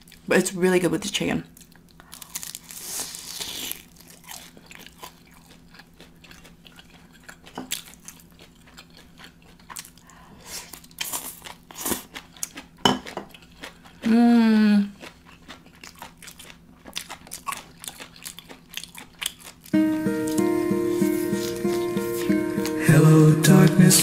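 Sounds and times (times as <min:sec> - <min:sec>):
chewing with short clicks: 0:10.8 - 0:12.7, 0:15.0 - 0:19.8.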